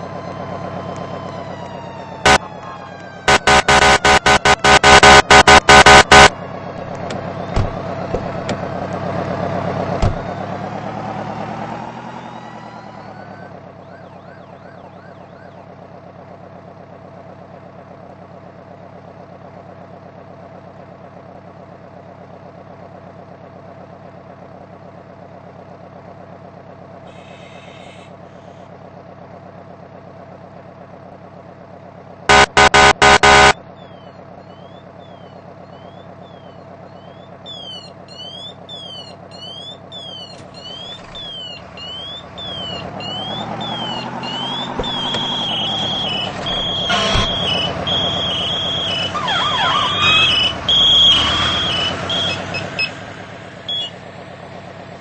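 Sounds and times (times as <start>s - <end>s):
electronic siren yelping: 0.0s - 6.4s, 12.0s - 15.6s, 32.3s - 53.0s, 53.6s - 54.0s
diesel engine running: 0.0s - 55.0s
air horn blasts: 3.3s - 6.3s, 32.3s - 33.6s, 46.8s - 47.7s.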